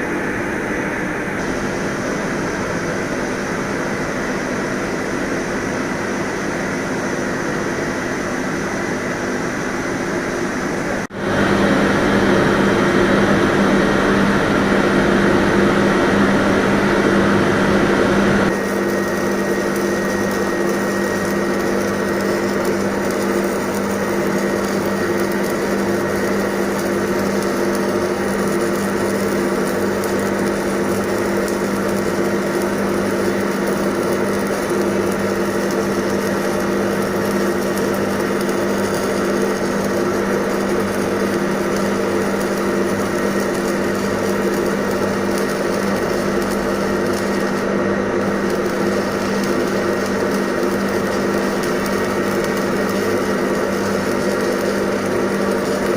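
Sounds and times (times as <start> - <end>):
welding arc crackling and buzzing: 13.5 - 55.9.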